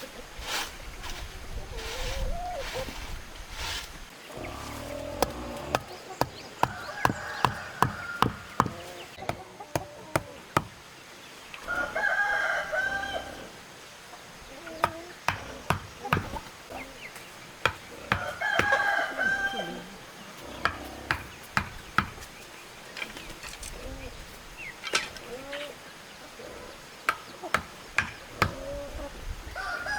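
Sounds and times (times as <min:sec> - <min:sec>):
rooster crowing: 0:05.2 - 0:08.9, 0:11.7 - 0:13.4, 0:18.1 - 0:19.9, 0:29.6 - 0:29.9
sharp irregular knocks: 0:05.2 - 0:10.8.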